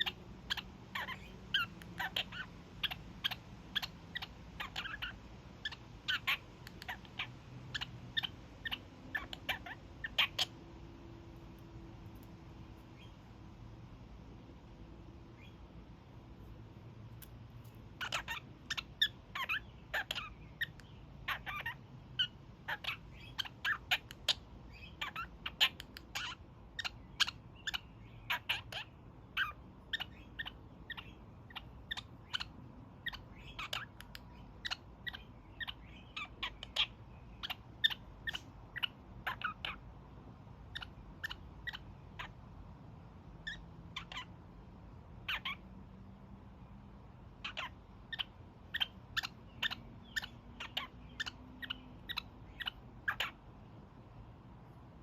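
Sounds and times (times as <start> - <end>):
parakeet honking calls: 0.0 - 11.6, 17.9 - 39.9, 40.6 - 42.5, 43.4 - 44.5, 45.2 - 45.6, 47.4 - 53.8.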